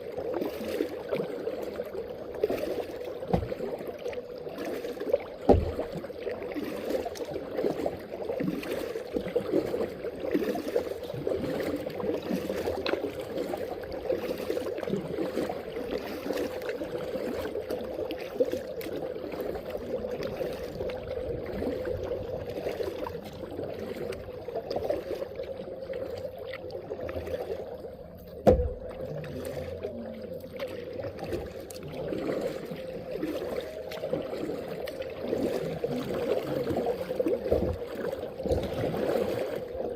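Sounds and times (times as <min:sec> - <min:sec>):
water lapping around kayak: 0:00.0 - 0:39.9.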